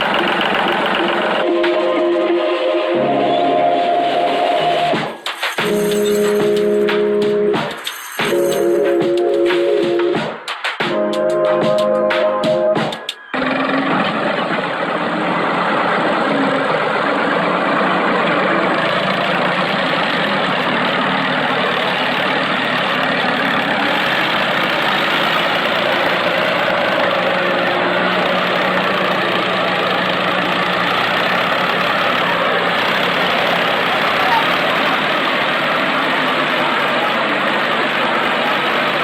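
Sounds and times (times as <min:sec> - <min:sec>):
mini tractor engine running: 0:00.0 - 0:01.6, 0:13.2 - 0:39.0.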